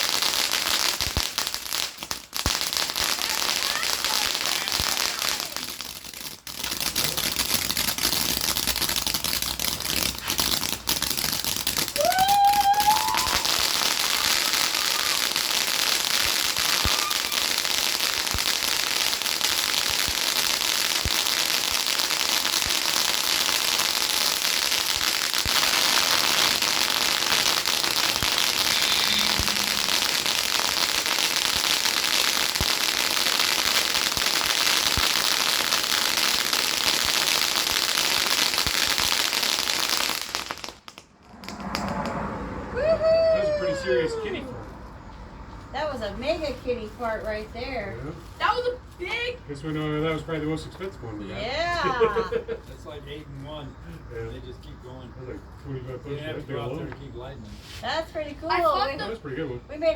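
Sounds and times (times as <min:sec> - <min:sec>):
firework cake crackling: 0:00.0 - 0:59.9
short rising whistle: 0:12.0 - 0:15.0, 0:28.0 - 0:30.8, 0:41.2 - 0:44.6.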